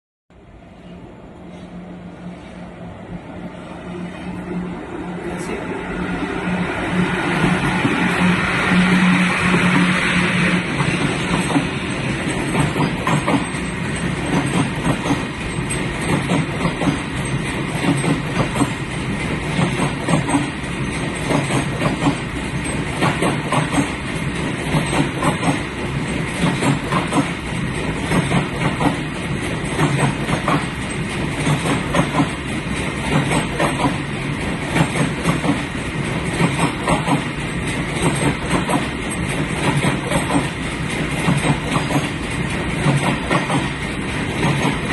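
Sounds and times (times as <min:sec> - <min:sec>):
train rumbling: 0:00.3 - 0:44.9
wheels clicking over rail joints: 0:10.8 - 0:44.9.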